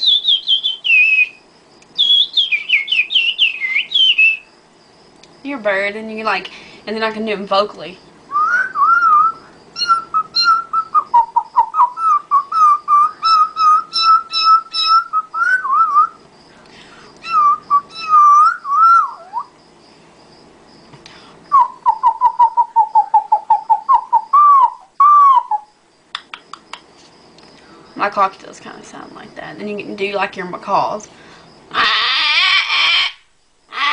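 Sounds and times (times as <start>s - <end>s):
woman imitating birdsong: 17.2s - 19.4s.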